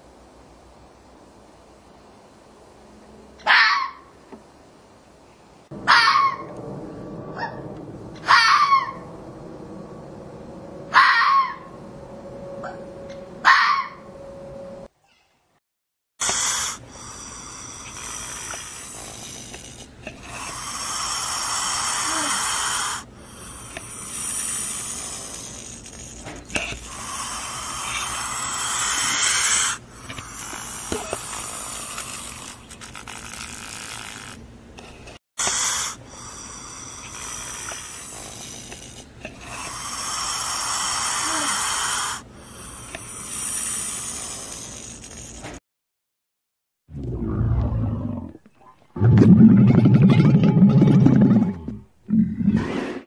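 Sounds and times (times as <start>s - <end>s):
snake hissing: 16.2s - 34.4s, 35.4s - 45.6s.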